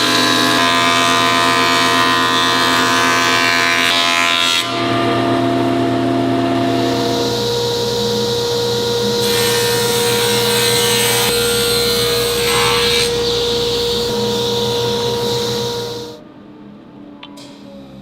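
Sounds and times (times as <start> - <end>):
power tool working wood: 6.4 - 16.2.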